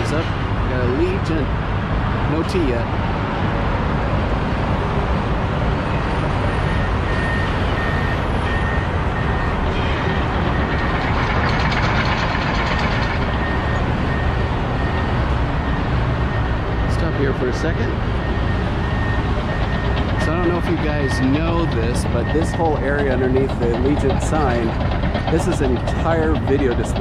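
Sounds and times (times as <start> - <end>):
road traffic rumble: 0.0 - 27.0
reversing alarm beeping: 5.9 - 27.0.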